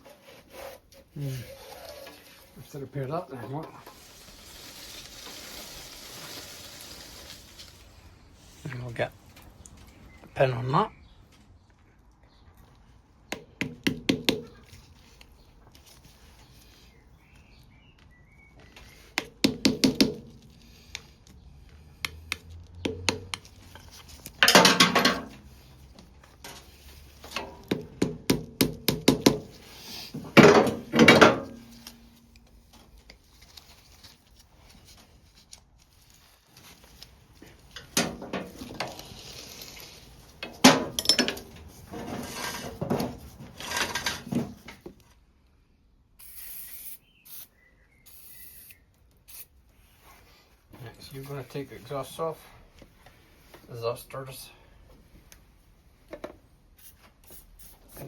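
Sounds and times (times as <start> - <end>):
metal tools clinking and clattering: 40.4 - 42.8.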